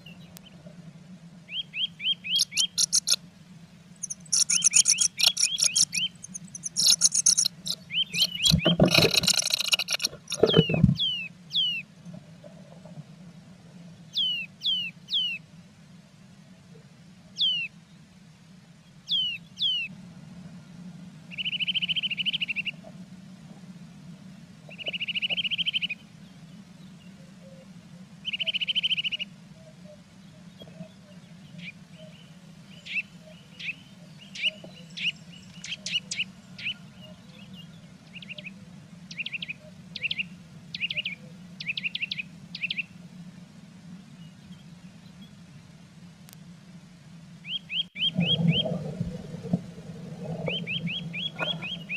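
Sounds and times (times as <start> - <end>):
steady low hum: 0.0 - 14.2, 22.8 - 51.9
bird sharp chirps: 1.6 - 3.2, 4.0 - 11.8, 50.5 - 51.9
bird buzzy trills: 1.8 - 3.3, 3.9 - 11.7, 47.6 - 51.9.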